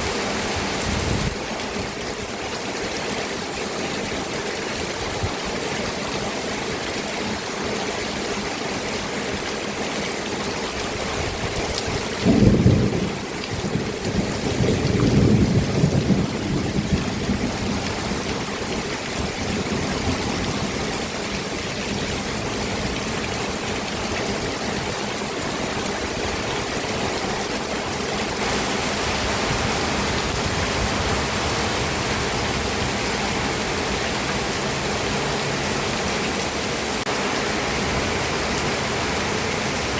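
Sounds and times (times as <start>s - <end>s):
steady rain falling: 0.0s - 39.9s
thunder rumbling: 12.2s - 18.5s.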